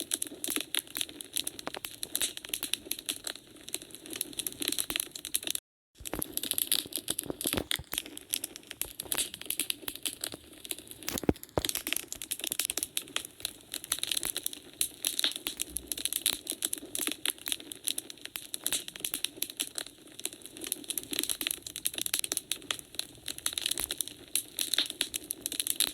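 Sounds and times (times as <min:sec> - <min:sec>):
wood fire crackling: 0:00.0 - 0:25.9.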